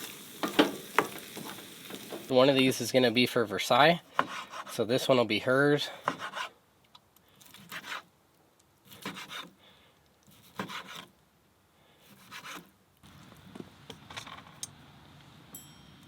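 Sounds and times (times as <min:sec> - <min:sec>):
utensil scraping a pan: 0:04.1 - 0:05.1.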